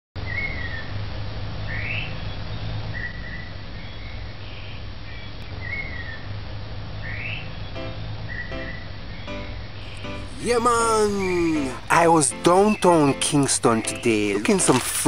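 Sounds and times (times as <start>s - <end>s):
birds calling in whistled notes: 12.4s - 14.3s.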